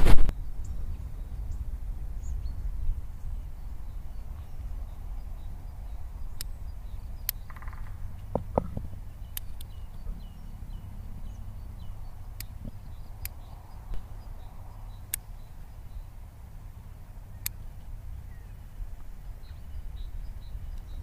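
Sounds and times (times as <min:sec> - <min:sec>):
steady low rumble: 0:00.0 - 0:21.0
faint bird chirps: 0:00.3 - 0:16.3.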